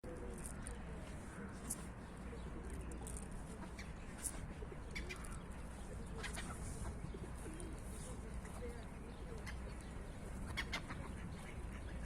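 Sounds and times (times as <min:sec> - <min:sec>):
pigeons cooing: 0:06.0 - 0:08.1.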